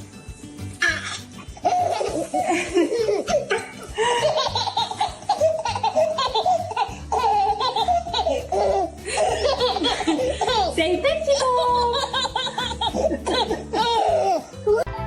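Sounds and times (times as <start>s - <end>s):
background music: 0.0s - 15.0s
person laughing hard: 1.7s - 10.7s, 11.9s - 14.9s.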